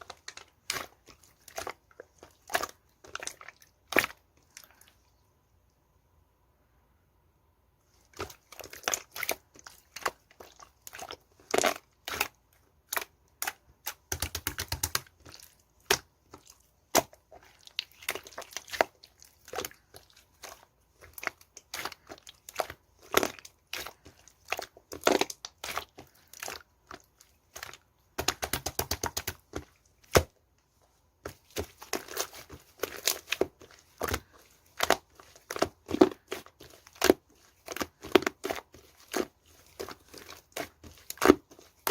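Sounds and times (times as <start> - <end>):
slime crackling and popping: 15.8 - 30.3, 31.4 - 41.9.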